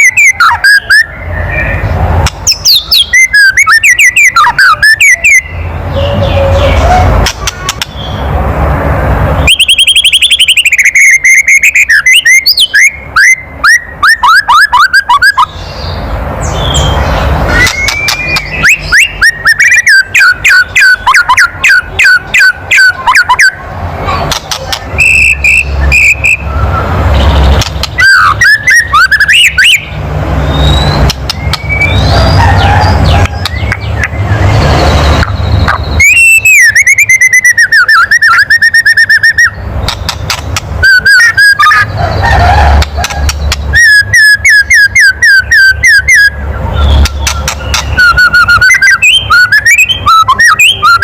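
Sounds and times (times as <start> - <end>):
bird whistled notes: 0.0 - 1.8, 2.5 - 5.7, 9.4 - 15.5, 16.4 - 23.6, 25.0 - 39.6, 40.8 - 41.9, 43.0 - 51.0
bird clicking rattle calls: 7.2 - 8.0, 17.6 - 19.6, 27.6 - 29.6, 39.8 - 41.5, 42.7 - 43.8, 47.0 - 48.9.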